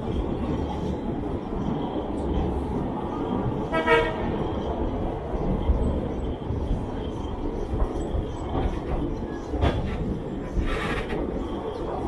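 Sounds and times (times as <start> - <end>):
moving train rumble: 0.0 - 12.0
train horn toot: 3.6 - 4.4.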